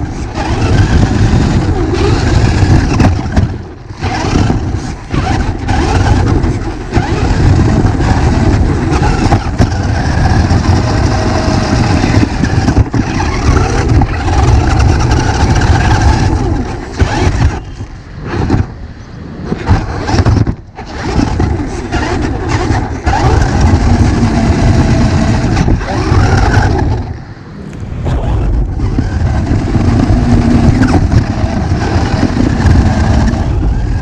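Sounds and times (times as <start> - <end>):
electric toy car motor whine: 0.0 - 18.7, 19.6 - 27.2
tyres on ground: 0.4 - 33.6.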